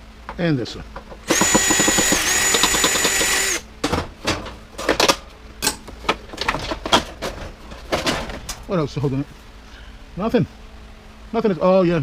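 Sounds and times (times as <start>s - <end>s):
sharp clicks and knocks of parts: 0.2s - 8.7s
power drill driving screws: 1.2s - 3.7s.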